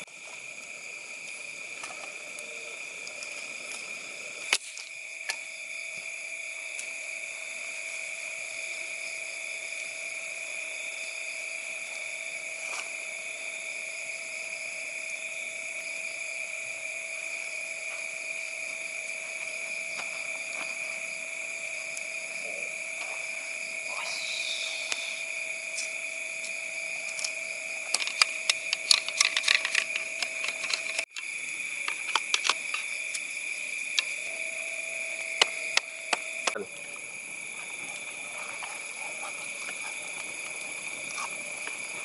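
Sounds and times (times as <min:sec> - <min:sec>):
night insects trilling: 0:00.0 - 0:42.0
sharp clicks: 0:31.8 - 0:33.2.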